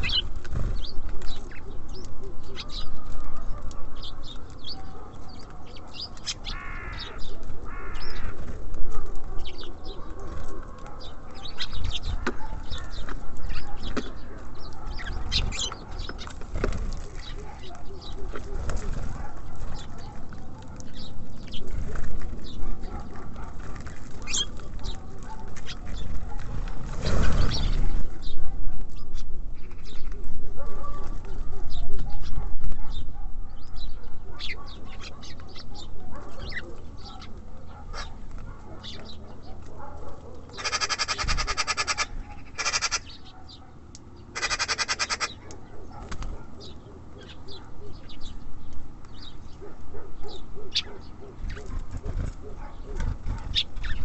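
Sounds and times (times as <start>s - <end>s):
harsh buzzy bird calls: 0.0s - 8.6s, 24.2s - 28.4s, 40.5s - 48.4s
birds pecking and scrabbling: 0.0s - 54.0s
songbirds chirping: 0.0s - 54.0s
high bird chirp: 11.0s - 16.4s.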